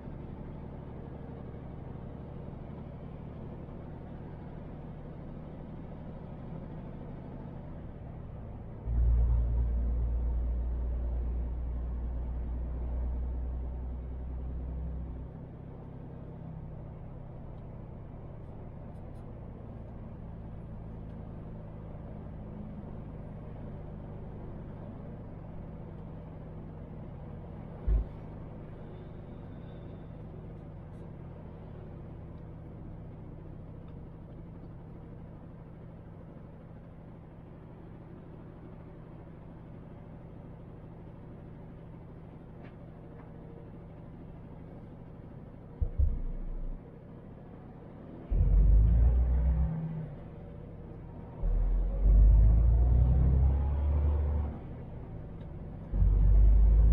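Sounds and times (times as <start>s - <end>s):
truck diesel engine driving: 0.0s - 56.9s
sharp thump: 45.8s - 46.8s.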